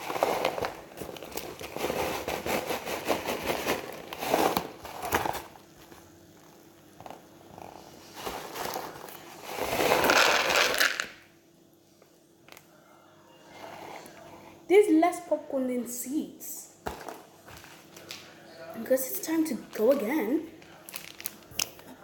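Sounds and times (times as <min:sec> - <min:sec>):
paper bag rustling and crinkling: 0:00.0 - 0:06.1, 0:07.1 - 0:11.0, 0:20.7 - 0:21.8
popcorn shifting in bag: 0:00.0 - 0:06.1, 0:07.0 - 0:11.1, 0:20.7 - 0:22.0.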